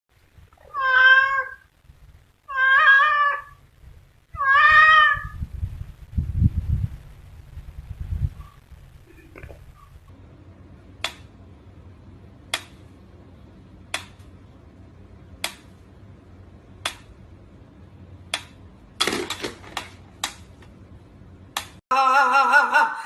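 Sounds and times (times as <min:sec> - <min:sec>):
low steady hum: 0:00.1 - 0:23.0
sharp clicks: 0:11.0 - 0:11.3, 0:12.5 - 0:12.8, 0:13.9 - 0:14.3, 0:15.4 - 0:15.7, 0:16.8 - 0:17.1, 0:18.3 - 0:20.5.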